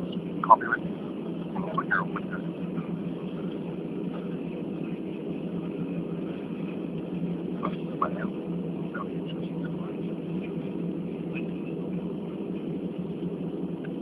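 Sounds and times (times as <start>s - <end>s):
airliner cabin hum: 0.0s - 14.0s.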